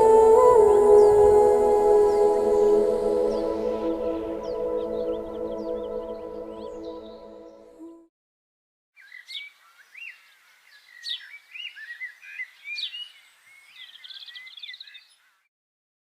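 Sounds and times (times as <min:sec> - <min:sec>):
birds singing: 0:00.0 - 0:07.9, 0:09.0 - 0:15.5.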